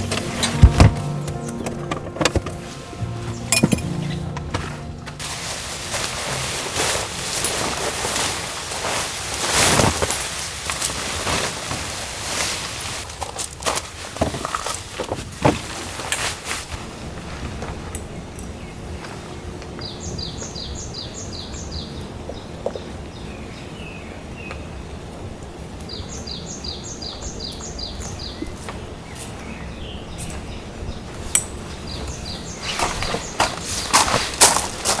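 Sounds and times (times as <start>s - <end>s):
outdoor hiss: 4.6s - 13.2s.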